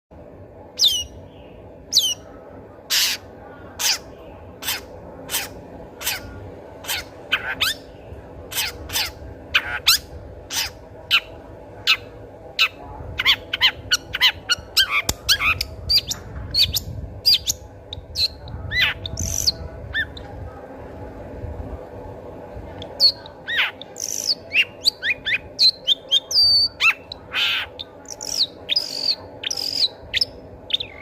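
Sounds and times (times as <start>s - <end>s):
bird chattering notes: 22.8s - 31.0s
shrike singing harsh calls: 22.8s - 31.0s.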